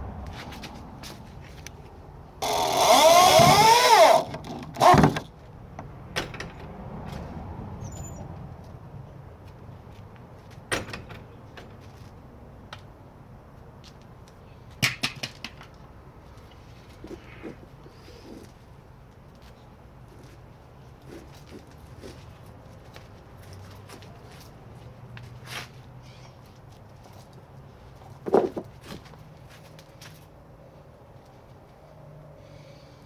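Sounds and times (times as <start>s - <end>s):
gate hinges creaking: 2.4s - 5.3s.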